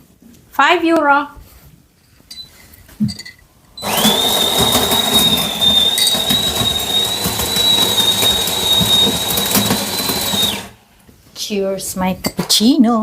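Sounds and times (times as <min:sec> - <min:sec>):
coffee machine whining and hissing: 0:03.8 - 0:10.8.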